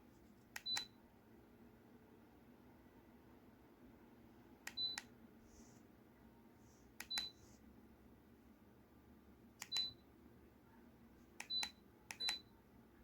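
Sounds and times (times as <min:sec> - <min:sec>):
button click and short beep: 0:11.4 - 0:12.4.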